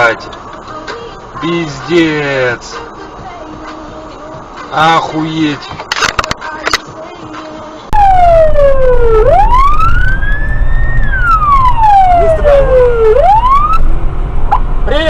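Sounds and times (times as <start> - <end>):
car driving rumble: 0.0 - 15.0
police siren wailing: 7.9 - 13.8.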